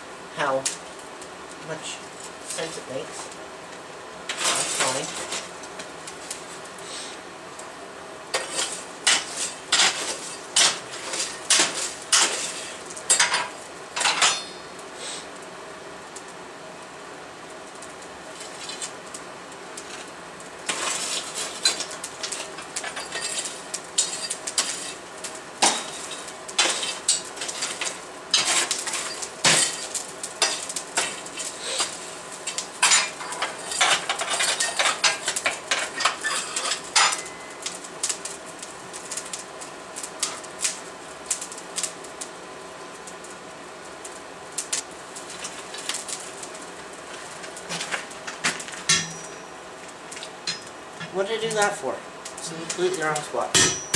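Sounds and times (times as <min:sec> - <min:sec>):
faint steady hum: 0:00.0 - 0:53.9
hammer striking steel on anvil: 0:48.9 - 0:49.4, 0:53.5 - 0:53.9.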